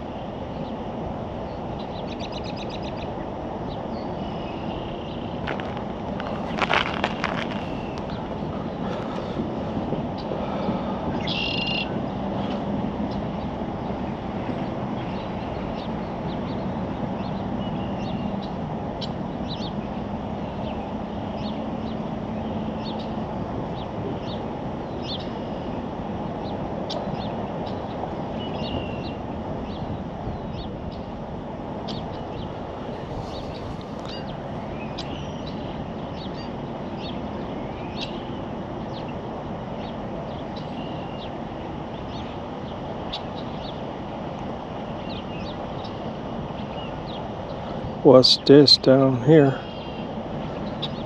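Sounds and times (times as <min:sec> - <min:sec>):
birds chirping: 0:01.5 - 0:23.2, 0:31.8 - 0:44.2, 0:44.8 - 0:51.0
low rushing noise: 0:29.1 - 0:36.1.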